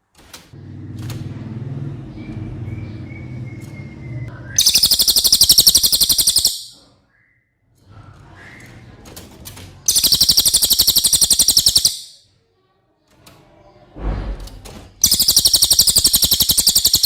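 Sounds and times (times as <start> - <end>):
bird high-pitched trills: 2.7 - 6.8, 9.9 - 12.2, 15.0 - 17.0.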